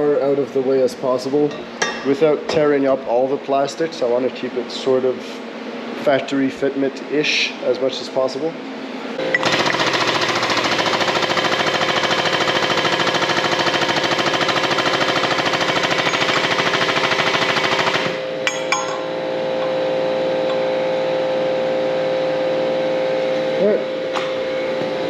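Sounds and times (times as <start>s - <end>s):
steady hum: 0.0s - 9.6s, 18.0s - 25.0s
power tool hammering: 9.2s - 21.1s, 24.1s - 25.0s.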